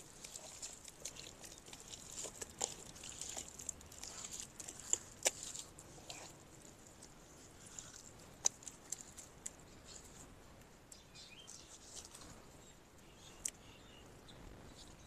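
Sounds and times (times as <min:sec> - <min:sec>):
small birds chirping: 0:07.3 - 0:15.0.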